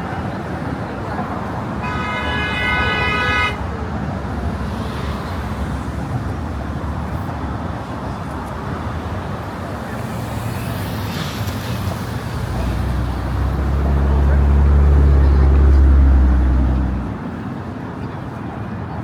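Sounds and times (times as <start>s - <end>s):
car traffic: 0.0s - 19.0s
car horn: 1.8s - 3.8s
deep engine rumble: 12.4s - 17.2s.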